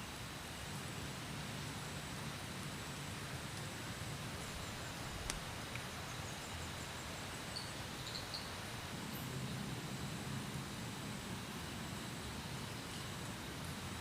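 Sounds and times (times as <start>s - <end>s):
faint high chirps: 7.4s - 9.4s.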